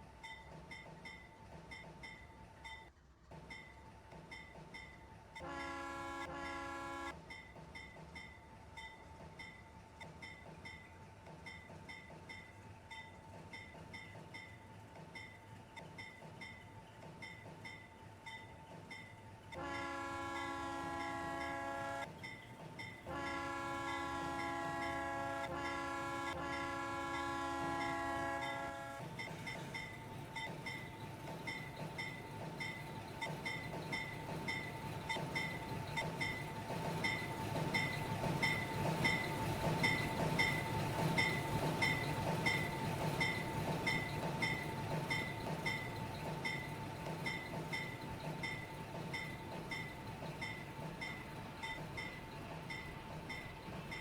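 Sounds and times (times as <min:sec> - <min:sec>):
train running noise: 0:00.0 - 0:54.0
steam locomotive chime whistle: 0:03.5 - 0:09.6, 0:17.7 - 0:54.0.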